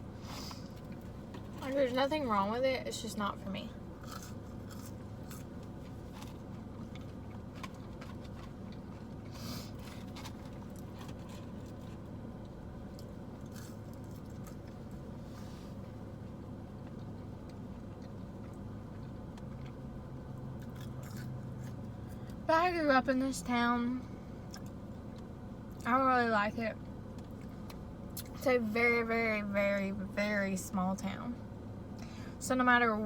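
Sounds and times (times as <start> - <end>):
steady low hum: 0.0 - 33.0
person chewing and biting food: 4.0 - 12.1, 12.9 - 15.2, 16.7 - 22.4, 24.4 - 25.8.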